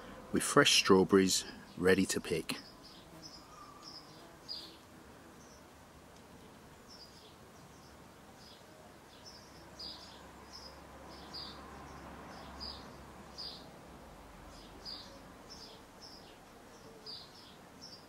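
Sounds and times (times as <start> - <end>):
faint outdoor background noise: 0.0 - 18.0
small bird chirping: 2.6 - 5.7.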